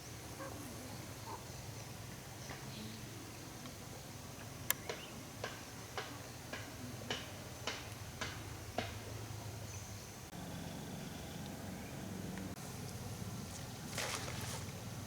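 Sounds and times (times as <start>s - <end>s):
low steady hum: 8.0s - 15.0s.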